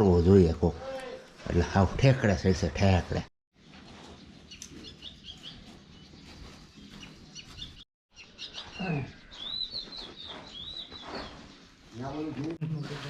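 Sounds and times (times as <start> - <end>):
small birds chirping: 3.6 - 13.0.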